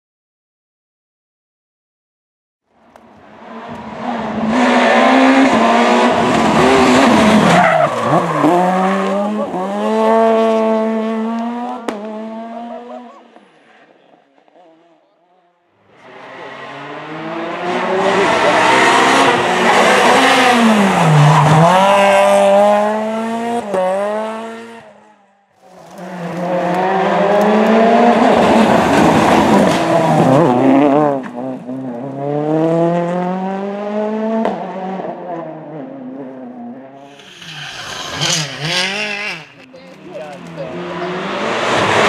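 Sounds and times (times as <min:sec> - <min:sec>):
rally car engines revving: 0:02.9 - 0:42.0
tyre squeal: 0:37.0 - 0:39.6.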